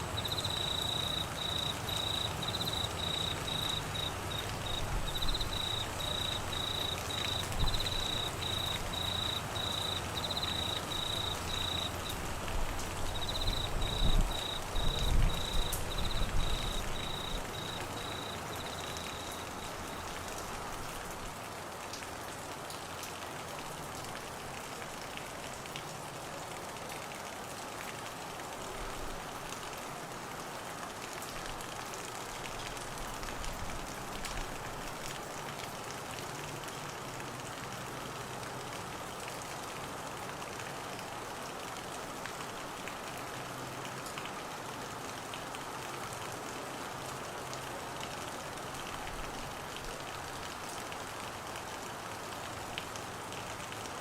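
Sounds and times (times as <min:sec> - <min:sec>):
cricket chirping: 0:00.0 - 0:12.3, 0:13.0 - 0:20.0
heavy rain hiss: 0:00.0 - 0:54.0.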